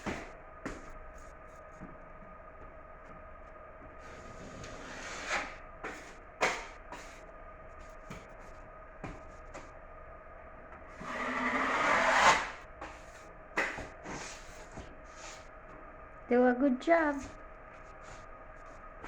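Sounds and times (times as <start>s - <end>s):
faint steady hum: 0.0s - 19.0s
tool scraping drywall: 4.2s - 5.6s, 10.9s - 12.6s.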